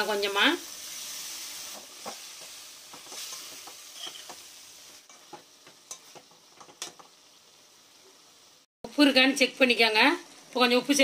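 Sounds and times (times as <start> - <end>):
chicken sizzling in a pan: 0.0 - 11.0
spatula scraping and tapping pan: 1.7 - 4.5, 5.1 - 7.2.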